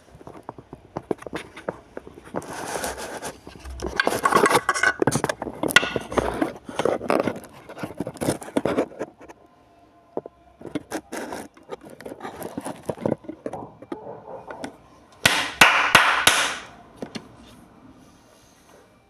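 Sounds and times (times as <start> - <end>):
scraping: 1.0 - 9.0
clicks and knocks: 3.6 - 6.5, 12.9 - 17.2.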